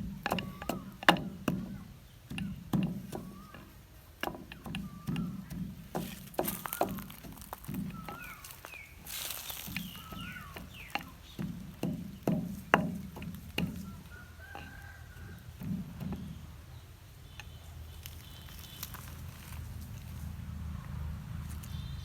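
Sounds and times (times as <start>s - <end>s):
dull knocks: 0.0s - 16.6s
faint chirping: 1.6s - 12.3s.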